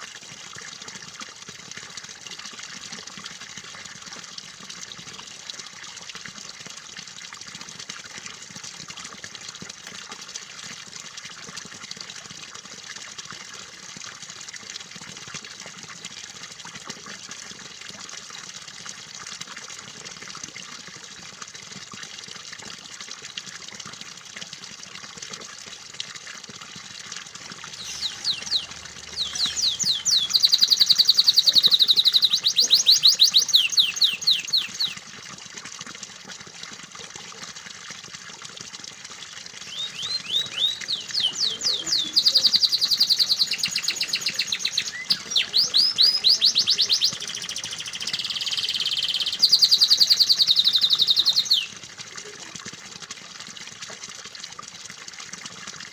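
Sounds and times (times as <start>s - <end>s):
running splashing water: 0.0s - 55.9s
canary singing trills: 27.7s - 35.0s, 39.6s - 51.7s.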